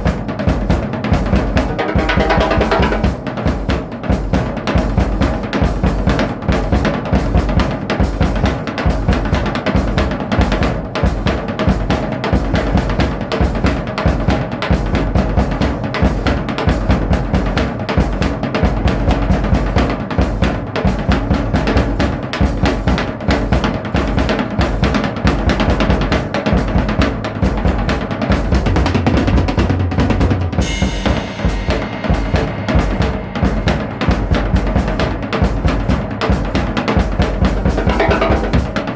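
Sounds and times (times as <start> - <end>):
drum kit playing a beat: 0.0 - 38.9.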